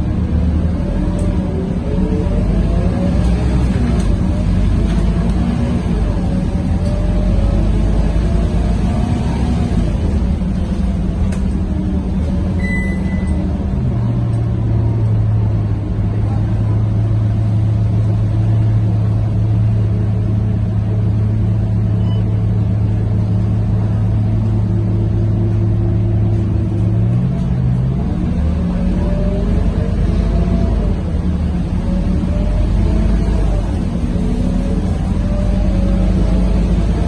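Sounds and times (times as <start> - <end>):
bus diesel engine droning: 0.0 - 37.0
short high beep: 12.6 - 13.4, 22.0 - 22.4.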